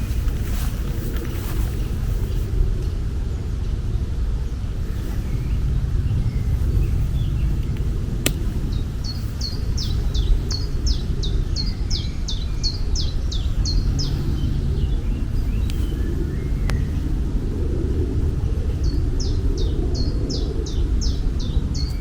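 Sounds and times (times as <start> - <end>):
steady low rumble: 1.7 - 22.0
sharp click: 7.6 - 8.5.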